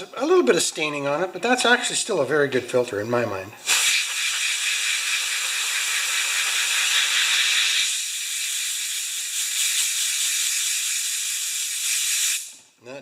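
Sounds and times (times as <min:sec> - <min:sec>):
air blow gun hissing: 0:03.6 - 0:12.6.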